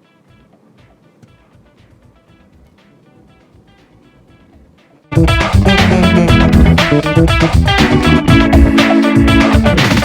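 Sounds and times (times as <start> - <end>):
plucked guitar music: 2.1 - 10.0.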